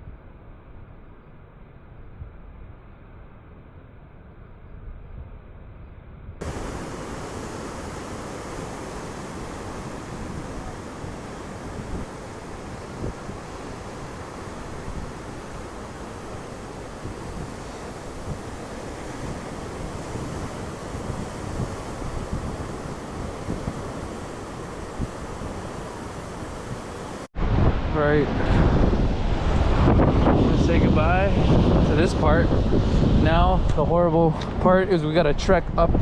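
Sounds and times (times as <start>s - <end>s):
ocean surf rushing: 6.4s - 34.3s
wind on microphone: 6.4s - 36.0s.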